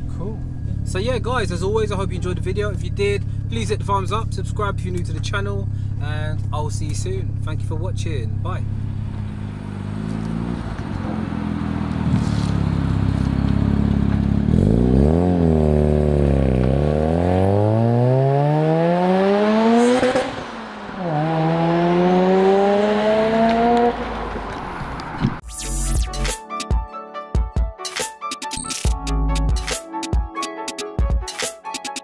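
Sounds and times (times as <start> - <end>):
rotary engine revving: 8.7 - 25.9.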